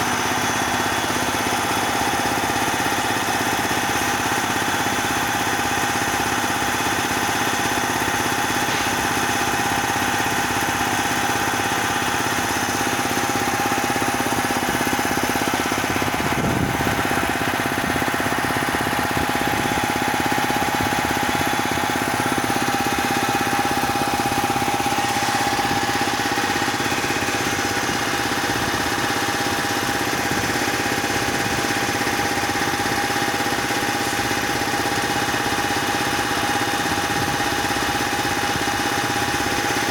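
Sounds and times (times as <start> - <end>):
compressor running: 0.0 - 39.9.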